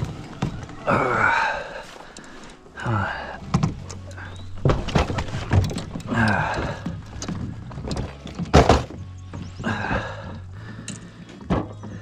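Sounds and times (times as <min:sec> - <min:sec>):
gear knocking against kayak hull: 0:03.4 - 0:12.0.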